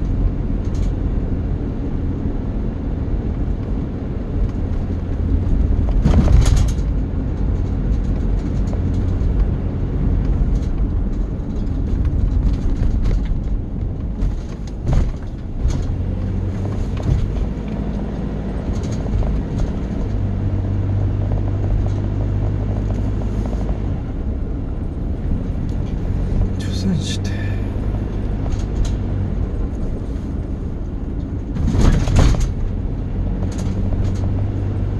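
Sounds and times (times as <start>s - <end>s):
steady low hum: 0.0s - 34.9s
vehicle engine rumbling: 0.0s - 34.9s
loud clatter: 5.4s - 9.4s, 10.3s - 24.1s, 31.2s - 32.8s.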